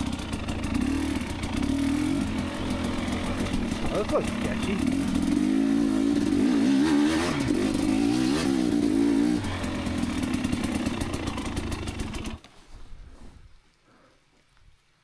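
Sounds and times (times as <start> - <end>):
two-stroke dirt bike engine revving: 0.0 - 12.4.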